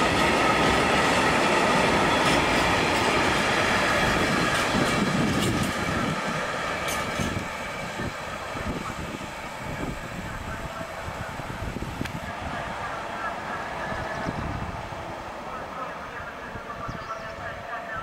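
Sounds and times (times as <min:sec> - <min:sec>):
wheels clacking over rail joints: 0:00.0 - 0:07.8
freight train rolling past: 0:00.0 - 0:18.0.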